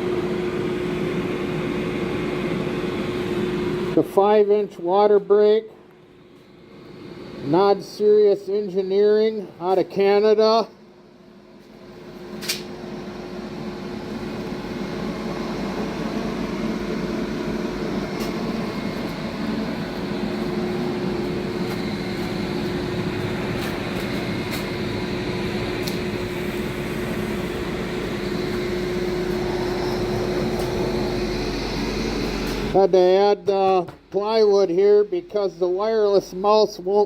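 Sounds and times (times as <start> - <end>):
machine whirring and humming: 0.0 - 37.0
sharp click: 12.4 - 12.7.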